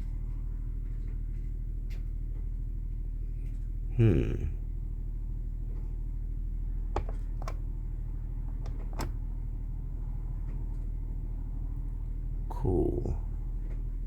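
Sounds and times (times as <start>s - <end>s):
diesel generator humming: 3.2s - 14.0s.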